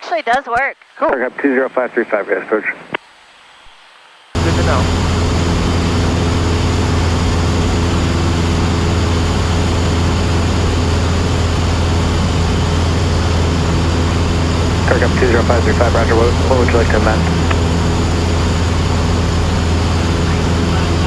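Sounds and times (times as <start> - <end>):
aircraft engine and propeller hum: 4.4 - 21.0
airflow noise: 4.4 - 21.0.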